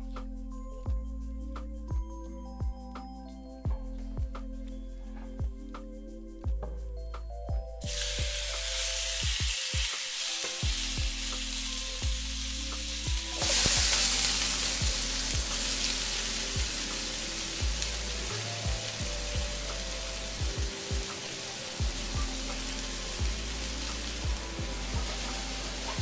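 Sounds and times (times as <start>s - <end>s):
background music with steady beat: 0.0s - 26.0s
meat sizzling in a skillet: 7.8s - 26.0s.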